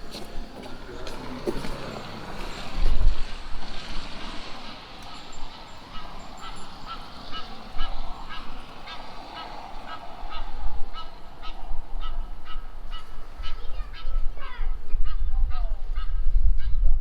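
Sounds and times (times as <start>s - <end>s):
geese honking: 4.5s - 16.2s.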